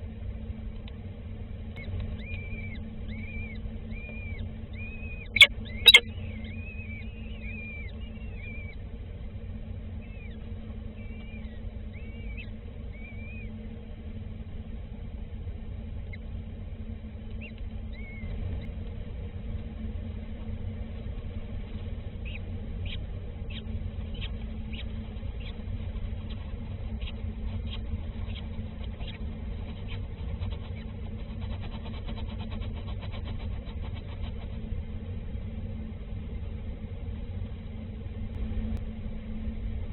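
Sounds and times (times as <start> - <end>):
steady low rumble: 0.0 - 39.9
small birds chirping: 1.8 - 8.8, 10.0 - 13.6, 22.1 - 31.4.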